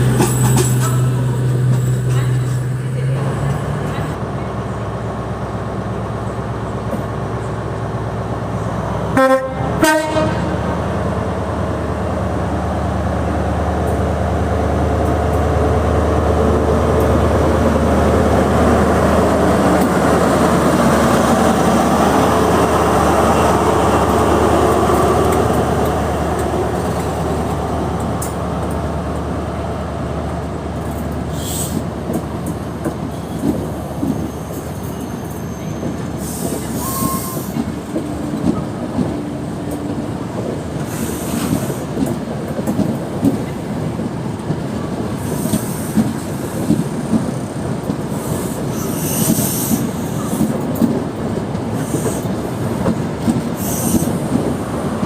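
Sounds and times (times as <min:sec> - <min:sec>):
diesel train engine droning: 0:00.0 - 0:55.0
train horn blasts: 0:09.2 - 0:10.6.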